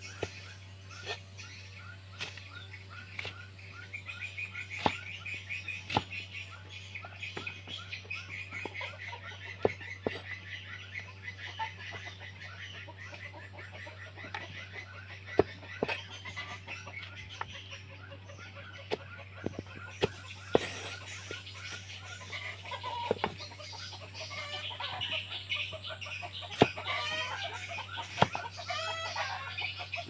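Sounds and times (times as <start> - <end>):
rapid chirping animal calls: 0.0 - 30.0
steady low hum: 0.0 - 30.0.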